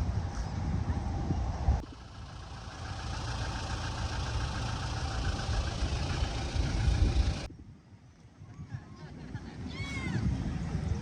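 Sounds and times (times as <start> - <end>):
engine running: 0.0 - 7.5.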